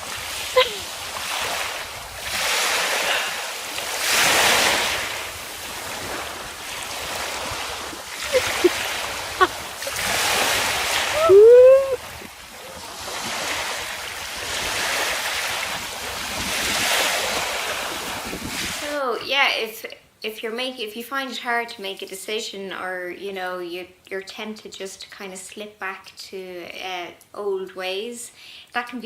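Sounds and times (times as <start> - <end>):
sea waves breaking: 0.0 - 18.9
short cries: 11.1 - 12.0.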